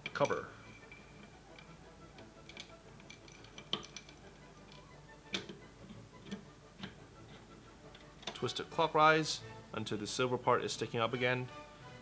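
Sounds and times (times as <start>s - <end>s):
quiet background music: 0.0s - 12.0s
hard clicks and knocks: 2.2s - 5.6s.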